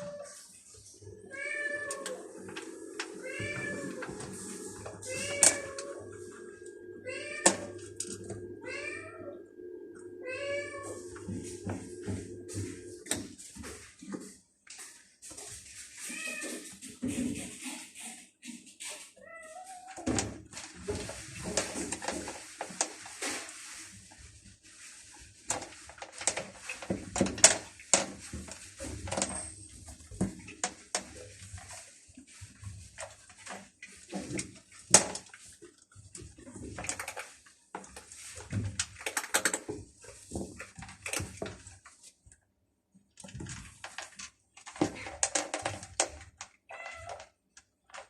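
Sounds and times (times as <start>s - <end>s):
cats meowing: 0.0s - 13.0s, 46.7s - 47.3s.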